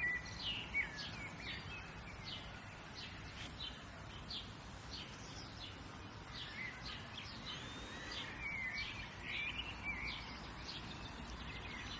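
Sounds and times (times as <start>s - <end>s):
birds chirping: 0.0s - 11.9s
low outdoor hiss: 0.0s - 11.9s.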